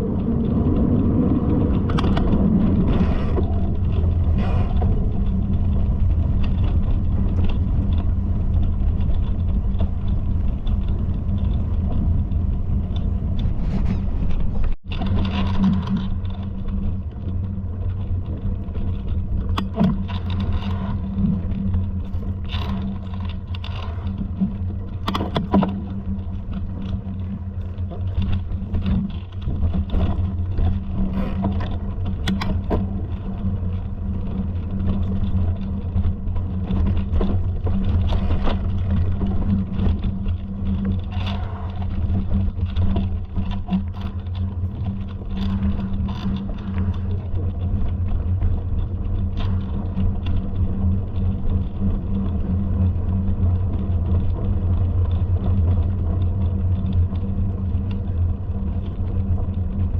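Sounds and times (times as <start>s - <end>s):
steady low rumble: 0.0s - 59.9s
short knocks and scrapes: 13.4s - 16.0s.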